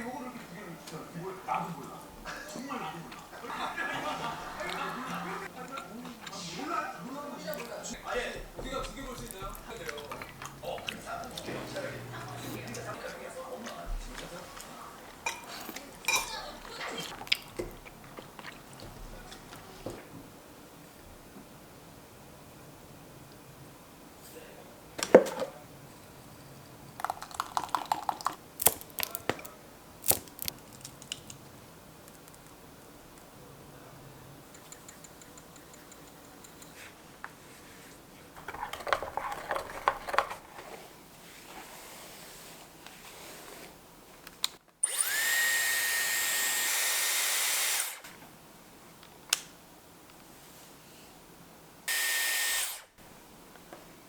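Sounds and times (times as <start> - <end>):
electric motor whining: 44.8 - 48.0, 51.9 - 52.8.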